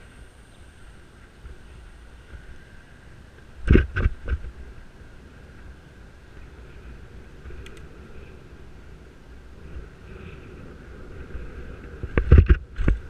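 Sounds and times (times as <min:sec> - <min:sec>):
wind and road rumble: 0:00.0 - 0:13.0
faint ticks: 0:07.4 - 0:07.9.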